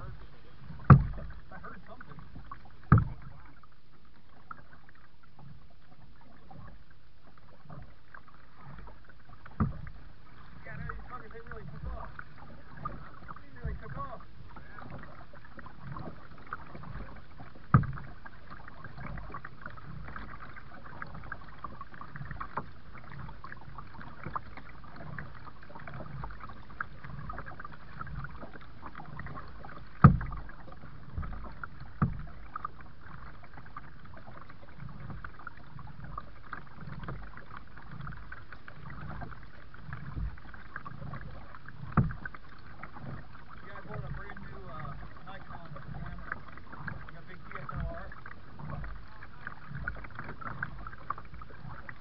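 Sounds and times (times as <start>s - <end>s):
paddle strokes through water: 0.0s - 52.0s
sharp knocks: 0.9s - 1.2s.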